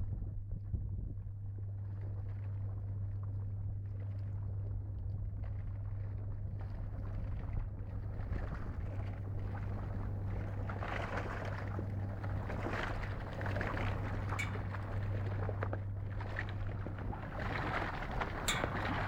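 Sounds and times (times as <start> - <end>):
boat engine droning: 1.9 - 19.0
rushing water and wind: 8.0 - 19.0.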